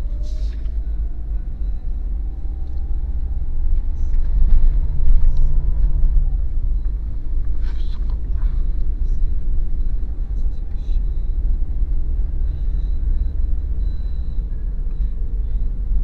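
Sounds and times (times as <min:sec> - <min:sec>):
engine and road noise in cabin: 0:00.0 - 0:16.0.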